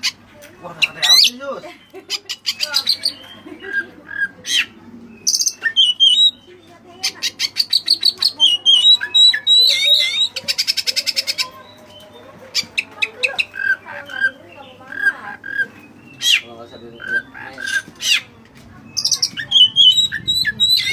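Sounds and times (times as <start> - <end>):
bird singing varied song: 0.0 - 20.9.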